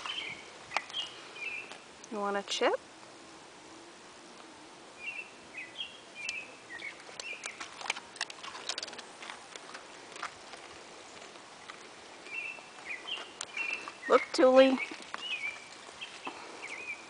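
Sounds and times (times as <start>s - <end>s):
small bird chirping: 0.0s - 1.8s, 5.0s - 7.7s, 11.1s - 17.0s
dog crunching a chip: 7.0s - 11.9s.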